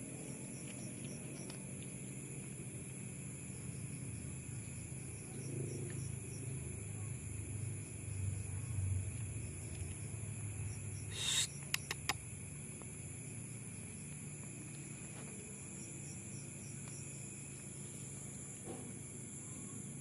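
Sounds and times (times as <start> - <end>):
insect chorus: 0.0 - 20.0
sharp clicks: 11.1 - 12.2.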